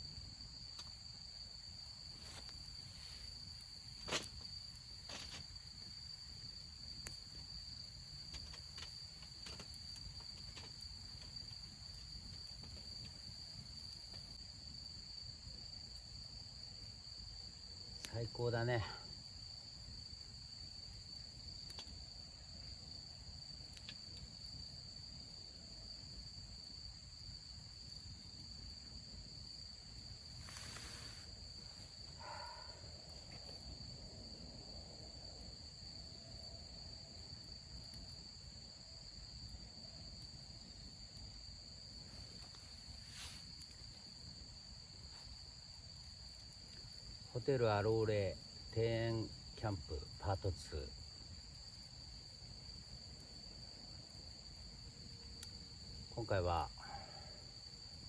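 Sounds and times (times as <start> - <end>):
insects chirping: 0.0 - 58.0
brief hiss: 30.4 - 31.4.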